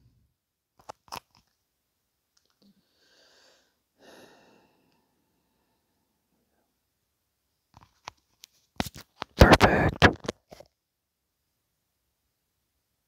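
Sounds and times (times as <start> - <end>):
faint breath: 2.6 - 6.8.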